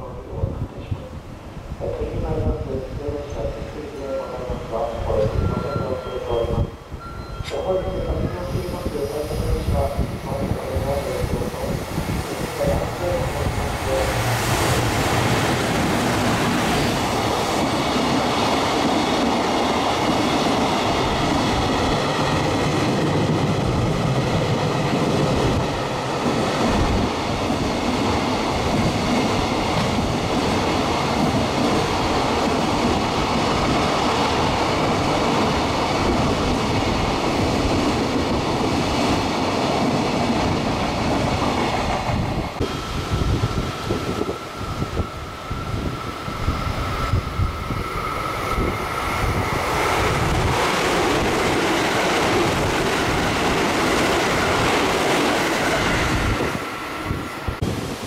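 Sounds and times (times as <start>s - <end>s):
train wheels rushing on rail: 0.0s - 58.0s
high steady ringing: 4.2s - 8.5s.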